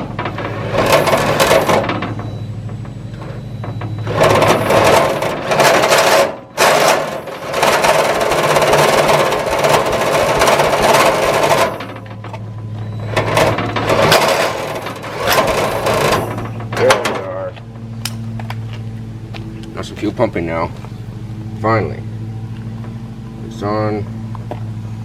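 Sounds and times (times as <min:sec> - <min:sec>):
tractor engine cranking: 0:00.0 - 0:21.4.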